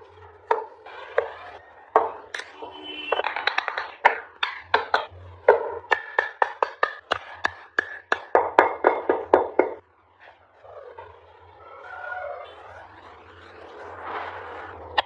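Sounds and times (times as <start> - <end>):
carving tool knocking on wood: 0.5 - 1.4, 2.0 - 9.8.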